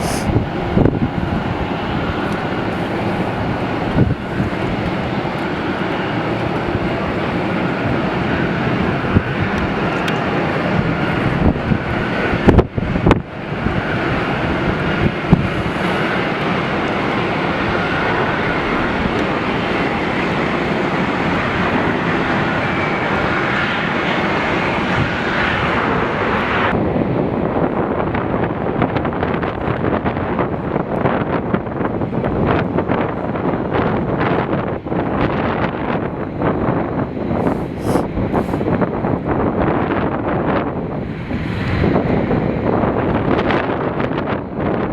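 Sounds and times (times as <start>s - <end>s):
faint engine whine: 0.0s - 27.0s
jet engines roaring: 0.0s - 44.9s
wind buffeting microphone: 0.0s - 44.9s.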